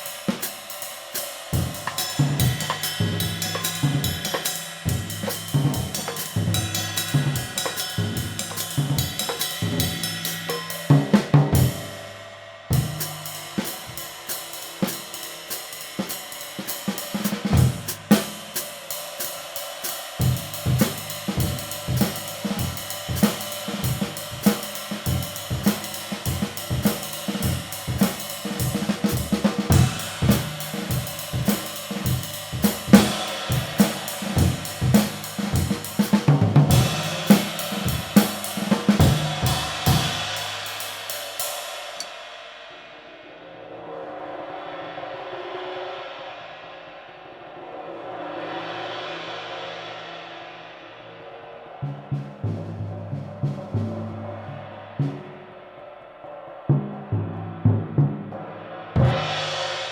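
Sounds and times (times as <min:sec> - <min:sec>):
drum kit groove: 0:00.0 - 0:42.2, 0:51.8 - 0:55.5, 0:58.9 - 0:59.9
ride cymbal ringing: 0:00.0 - 0:42.5.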